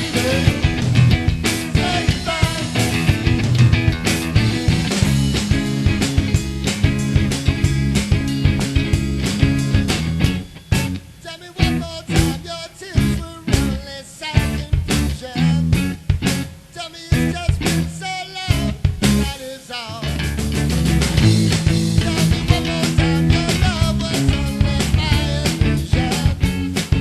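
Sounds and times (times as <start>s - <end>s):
person singing: 0.0s - 0.8s, 1.7s - 3.0s, 11.2s - 15.7s, 16.8s - 20.2s, 22.0s - 26.5s
rock band playing: 0.0s - 19.4s, 20.0s - 27.0s.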